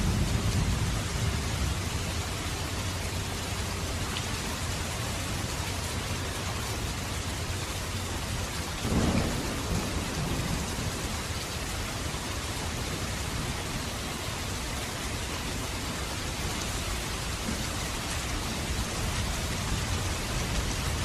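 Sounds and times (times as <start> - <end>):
low rumble of thunder: 0.0 - 3.7, 8.1 - 21.0
rain falling: 0.0 - 21.0.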